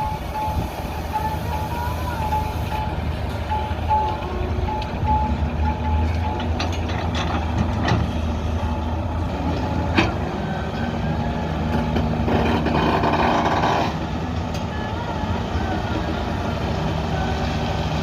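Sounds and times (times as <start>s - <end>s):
diesel engine running: 0.0s - 18.0s
metal knocks and clanks: 6.1s - 8.2s.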